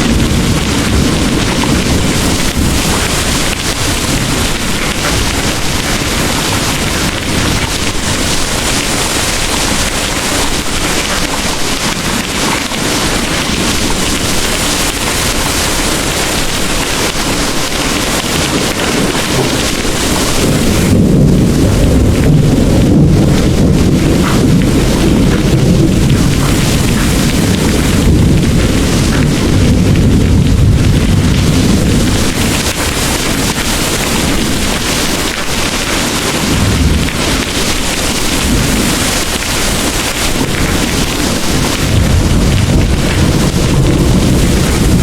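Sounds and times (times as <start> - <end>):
distant thunder rumbling: 0.0 - 45.0
heavy rain pouring: 0.0 - 45.0.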